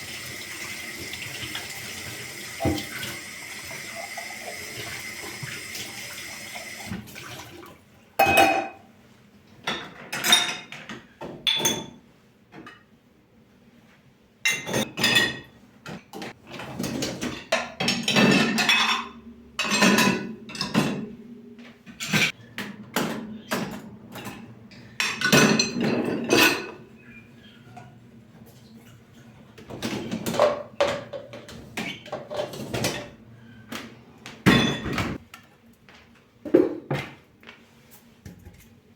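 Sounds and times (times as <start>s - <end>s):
running tap: 0.0s - 7.7s
dishes and pans clattering: 8.2s - 8.9s, 9.6s - 12.0s, 14.5s - 21.2s, 21.9s - 26.9s, 29.7s - 33.2s, 34.4s - 35.2s.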